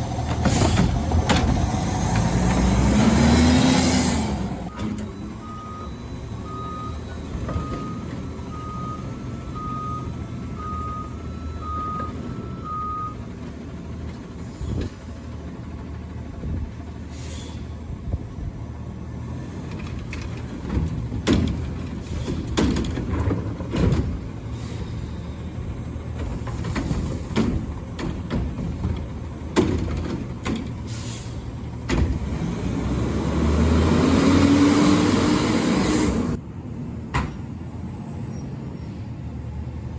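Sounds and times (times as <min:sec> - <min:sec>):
diesel engine running: 0:00.0 - 0:37.8
reversing beeper: 0:04.7 - 0:13.2.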